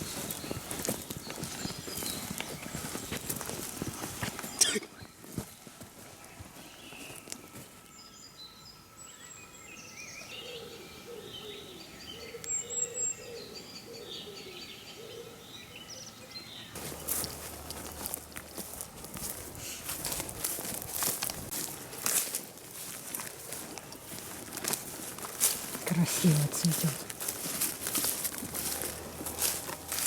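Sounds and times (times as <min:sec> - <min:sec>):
footsteps rustling on forest floor: 0:00.0 - 0:08.0, 0:16.7 - 0:30.0
birds singing: 0:00.0 - 0:30.0
lower repeated bird calls: 0:09.2 - 0:19.9.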